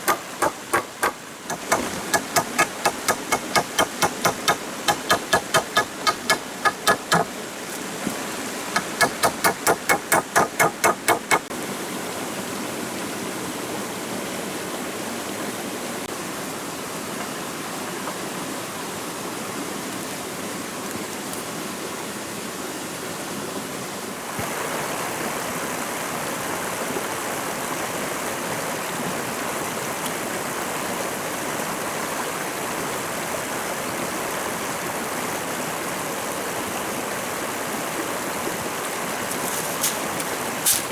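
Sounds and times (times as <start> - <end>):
ringing knocks: 0.0 - 7.3, 8.8 - 11.5
stream water flowing: 0.0 - 12.7, 24.2 - 40.9.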